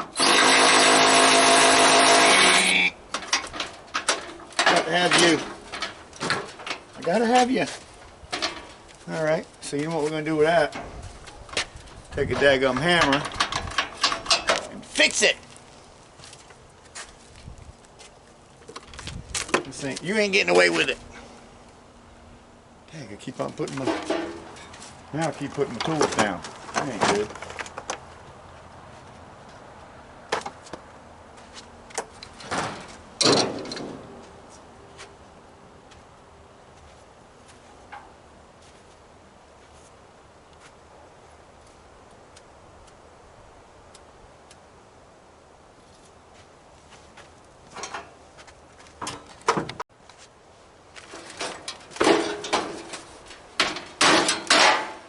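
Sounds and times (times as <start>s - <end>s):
metal grill parts clanking and scraping: 0.0s - 15.3s, 23.4s - 27.9s, 31.9s - 34.6s, 47.6s - 48.2s, 48.9s - 49.8s, 51.0s - 55.0s
metal tools clattering: 3.2s - 6.9s, 12.6s - 14.7s, 23.7s - 24.8s, 51.1s - 55.0s.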